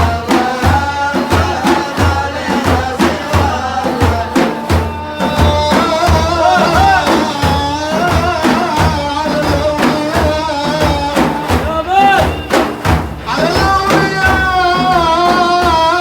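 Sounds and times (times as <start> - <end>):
person singing ornamented melody: 0.0 - 12.5
steady drum beat: 0.0 - 16.0.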